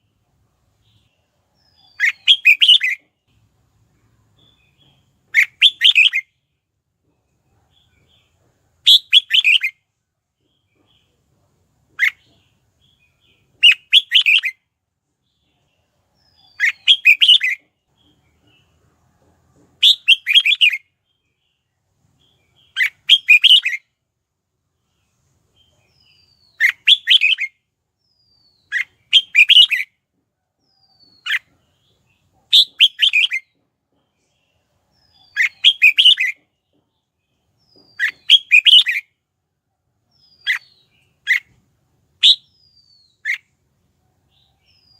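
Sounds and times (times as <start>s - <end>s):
bulbul warbling song: 42.2s - 42.6s.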